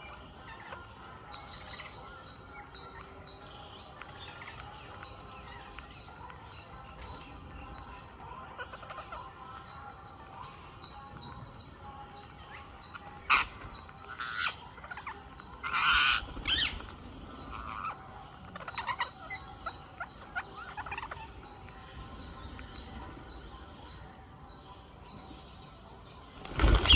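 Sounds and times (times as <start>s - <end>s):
parakeets chirping: 0.0s - 25.7s
parakeet harsh screeches: 15.6s - 16.7s.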